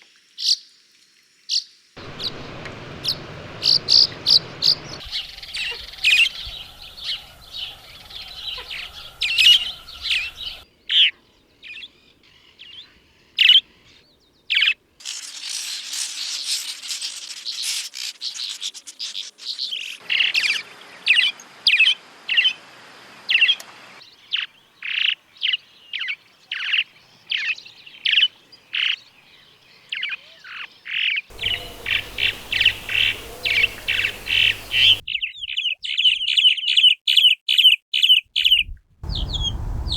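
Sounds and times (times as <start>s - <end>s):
swallows chirping: 2.0s - 10.6s, 31.3s - 36.4s, 38.4s - 39.9s.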